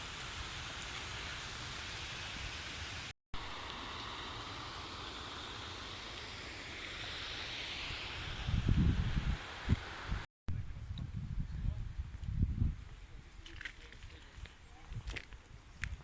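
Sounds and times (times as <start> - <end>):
river water rushing: 0.0 - 8.4
wind buffeting microphone: 8.2 - 13.5.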